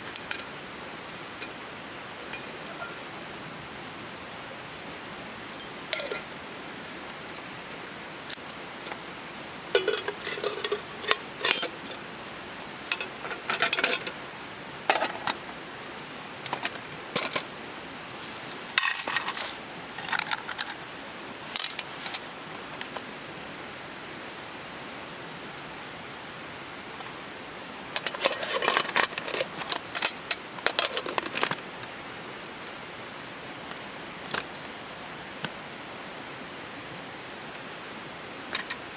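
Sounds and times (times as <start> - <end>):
steady background hiss: 0.0 - 38.9
metal cookware clattering: 9.8 - 11.8, 18.2 - 20.4.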